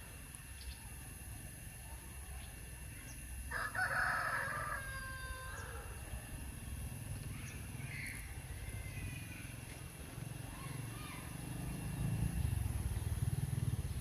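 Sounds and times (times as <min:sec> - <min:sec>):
rooster crowing: 0:03.5 - 0:06.1.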